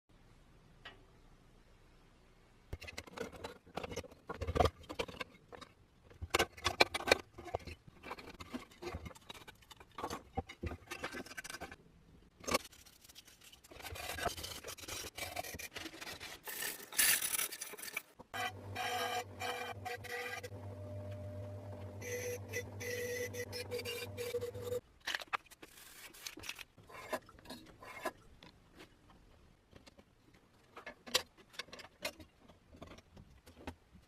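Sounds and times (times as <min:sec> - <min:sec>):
metal scraping: 0:13.9 - 0:24.8.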